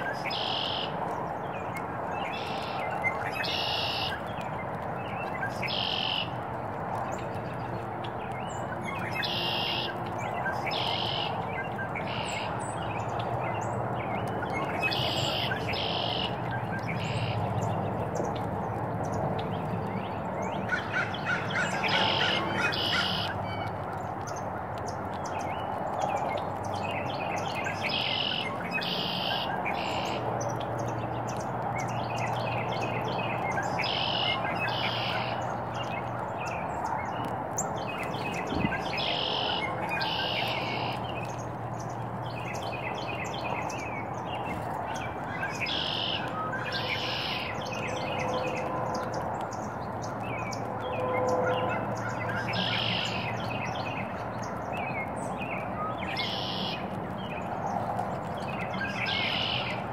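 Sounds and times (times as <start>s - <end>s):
songbird high call: 0.0s - 1.0s, 2.3s - 4.3s, 5.6s - 6.3s, 10.6s - 11.4s, 20.7s - 23.7s, 27.4s - 30.2s, 33.6s - 35.5s, 38.4s - 41.4s, 45.2s - 48.4s, 51.5s - 53.5s, 55.8s - 56.9s, 58.8s - 59.8s.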